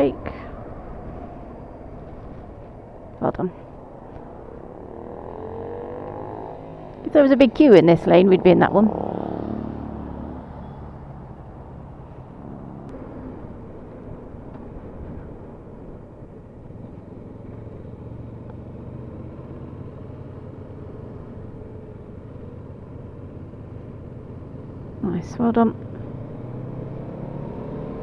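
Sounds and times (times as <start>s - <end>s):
road and wind noise: 0.0s - 28.0s
motorcycle engine running: 4.1s - 11.6s.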